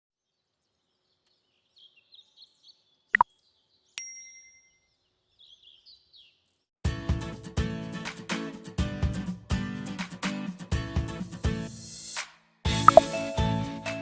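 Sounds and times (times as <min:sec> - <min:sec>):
bell-like ding: 0:04.0 - 0:04.8.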